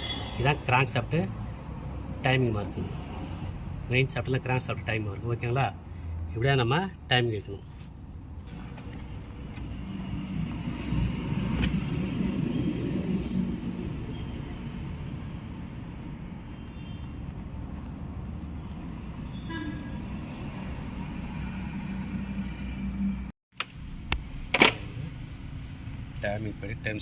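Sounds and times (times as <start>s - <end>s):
vehicle engine rumbling by: 7.5s - 23.3s
short horn toot: 19.3s - 20.1s.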